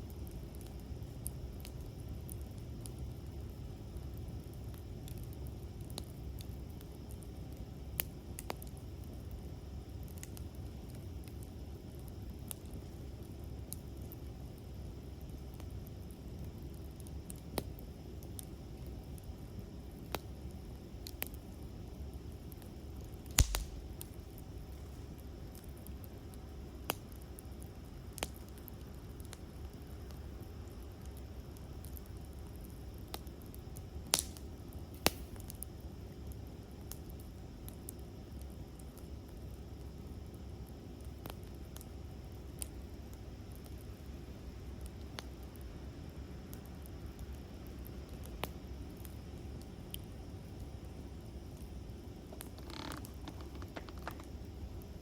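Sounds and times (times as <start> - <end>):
campfire crackling: 0.0 - 55.0
fire popping: 0.0 - 55.0.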